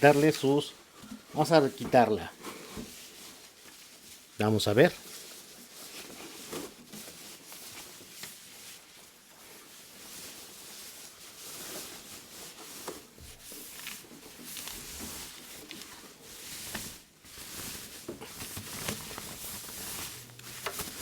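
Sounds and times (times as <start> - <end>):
foam bag rustling and scraping: 0.0 - 21.0.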